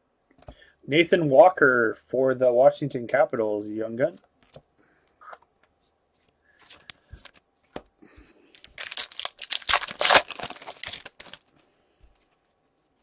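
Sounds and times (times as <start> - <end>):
plastic wrapper tearing and crinkling: 8.5 - 11.5.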